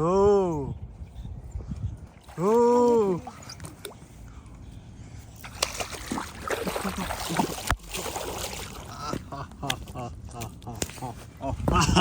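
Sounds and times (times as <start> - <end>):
water sloshing and splashing: 1.8 - 4.3, 5.2 - 10.0.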